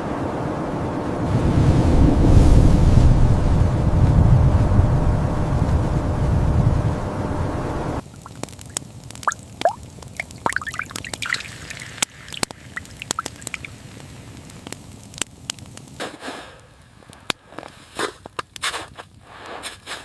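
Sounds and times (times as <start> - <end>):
water dripping plinks: 8.0 - 13.8.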